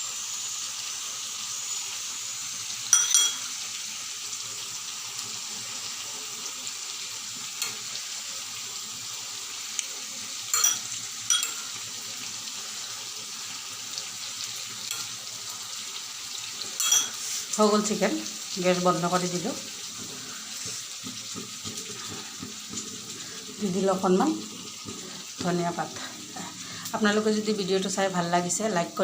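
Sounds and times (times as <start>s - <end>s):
curry sizzling in a pan: 0.0s - 29.0s
utensil clinking against pan: 2.9s - 3.6s, 10.5s - 11.8s, 16.8s - 17.2s.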